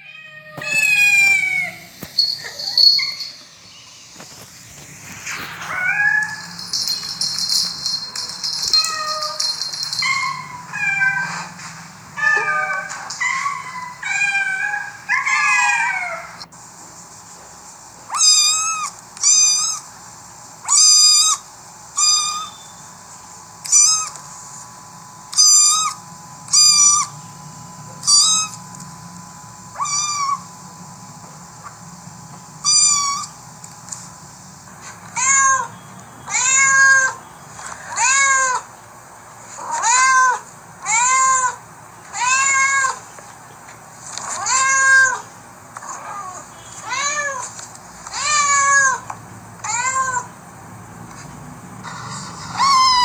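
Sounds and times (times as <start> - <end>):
cats and kittens meowing: 0.0 - 4.5, 5.2 - 16.5, 18.1 - 19.9, 20.6 - 21.4, 23.6 - 24.3, 25.3 - 27.2, 28.0 - 28.8, 29.7 - 30.6, 32.6 - 33.4, 34.8 - 38.7, 39.5 - 43.1, 44.2 - 50.4, 51.8 - 53.0.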